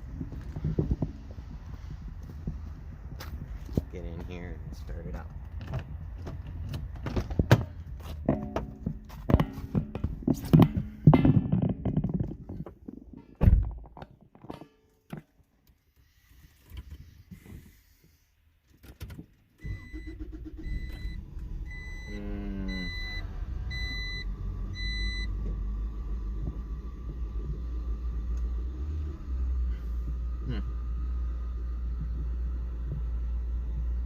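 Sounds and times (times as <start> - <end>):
car engine cranking and idling: 0.0 - 14.2, 14.9 - 34.0
warning chime beeping: 19.6 - 24.2.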